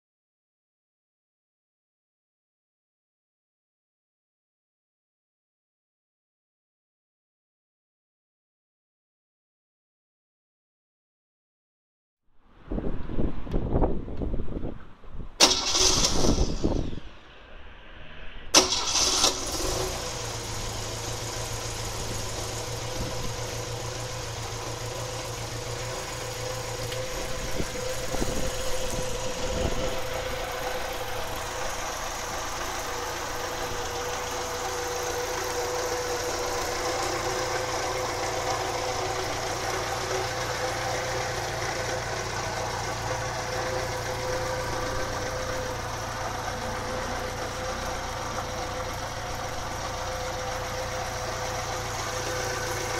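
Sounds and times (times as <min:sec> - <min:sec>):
car engine idling: 0:18.5 - 0:52.9.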